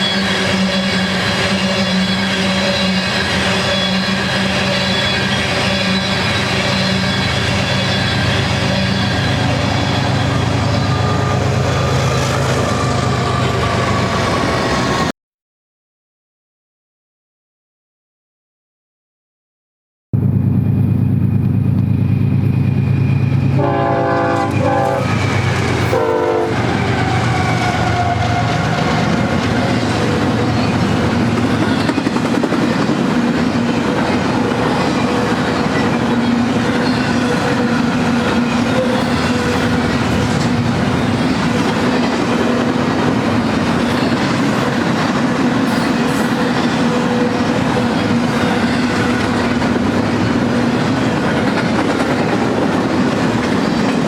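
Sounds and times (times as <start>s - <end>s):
train air horn: 0.0s - 14.4s, 23.6s - 28.9s
diesel locomotive engines: 0.0s - 15.1s, 20.2s - 54.0s
train cars rumbling by: 0.0s - 15.1s, 20.2s - 54.0s.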